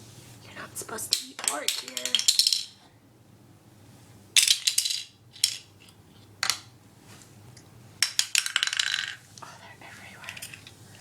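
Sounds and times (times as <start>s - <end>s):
plastic toy pieces clattering: 1.1s - 2.7s, 4.4s - 6.6s, 8.0s - 9.2s.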